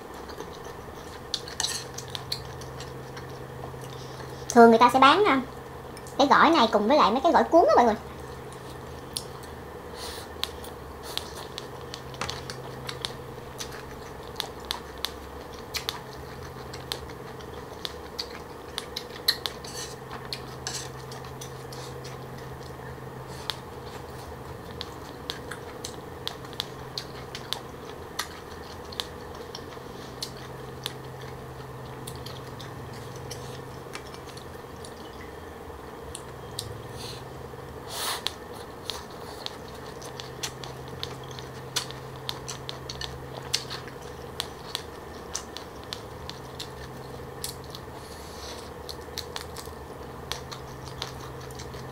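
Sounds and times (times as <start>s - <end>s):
steady low hum: 0.0s - 51.9s
wet crunchy chewing: 11.1s - 35.0s, 38.2s - 51.9s.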